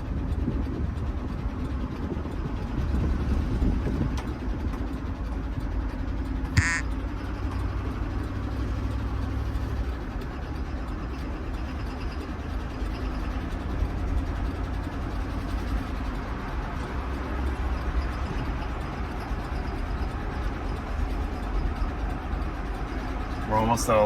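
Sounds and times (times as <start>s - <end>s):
engine running with knock: 0.0s - 24.0s
short high chirp: 6.6s - 6.8s.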